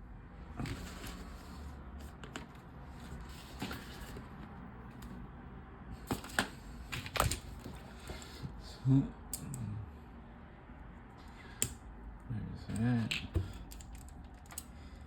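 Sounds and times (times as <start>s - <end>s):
plastic toy bricks clicking: 13.0s - 14.7s.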